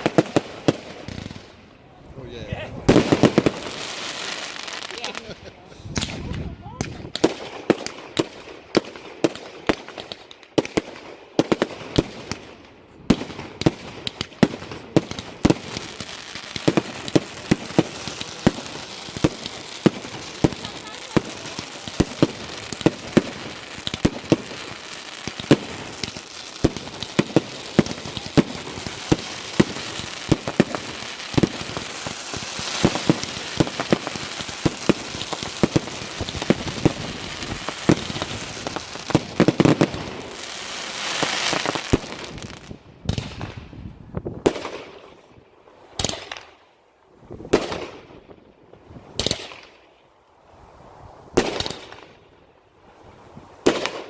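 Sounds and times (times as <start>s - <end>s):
firework bangs: 0.0s - 1.6s, 2.8s - 43.6s, 49.1s - 49.7s, 51.3s - 52.2s
firework crackling: 0.0s - 43.7s
firework hissing shots: 13.6s - 43.4s.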